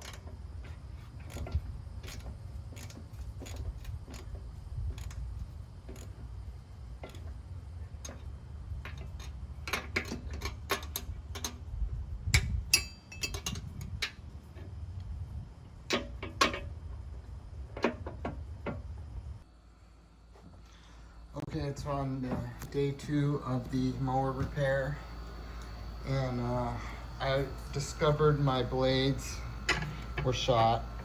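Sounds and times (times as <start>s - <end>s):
ratchet wrench clicking: 1.2s - 6.3s, 8.0s - 11.7s.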